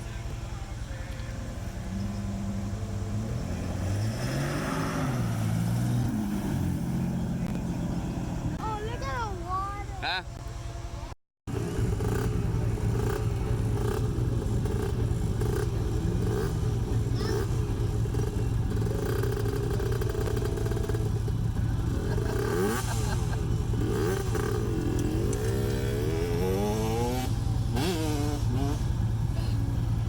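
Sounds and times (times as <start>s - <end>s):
off-road vehicle engine revving: 0.0s - 30.0s.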